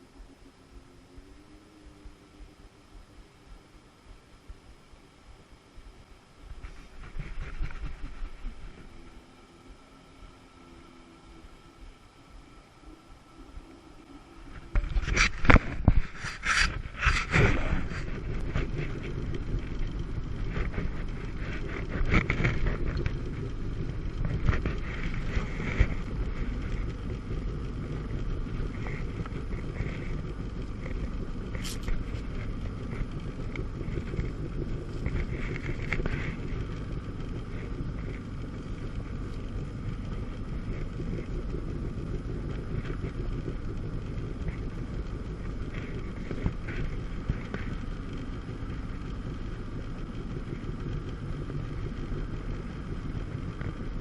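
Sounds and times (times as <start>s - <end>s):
jet ski engine: 0.0s - 54.0s
wind buffeting microphone: 14.5s - 52.2s.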